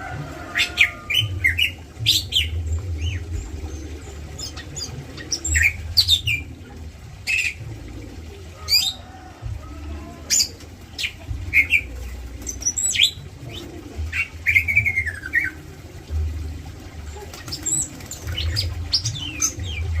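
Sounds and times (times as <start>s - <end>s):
birds chirping and calling: 0.0s - 20.0s
low rumble: 1.2s - 8.3s
wings flapping: 17.0s - 19.6s.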